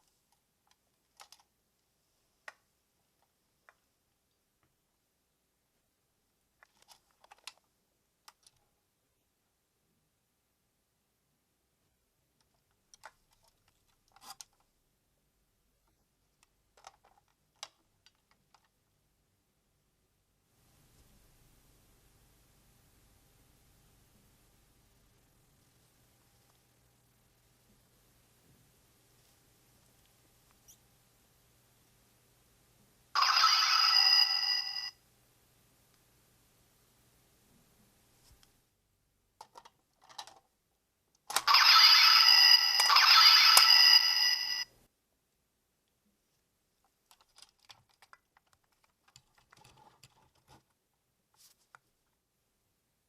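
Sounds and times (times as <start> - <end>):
plastic toy clicking: 0.7 - 1.5, 39.4 - 40.5, 41.2 - 43.8.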